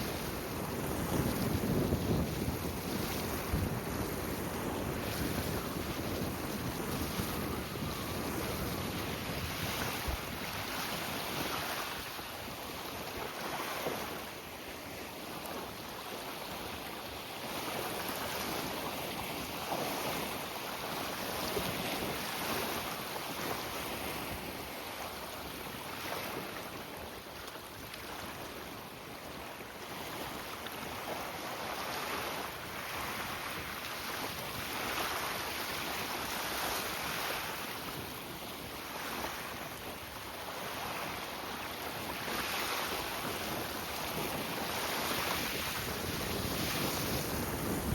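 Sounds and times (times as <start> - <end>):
wind buffeting microphone: 0.0 - 15.9, 39.0 - 47.9
choppy water: 0.0 - 47.9.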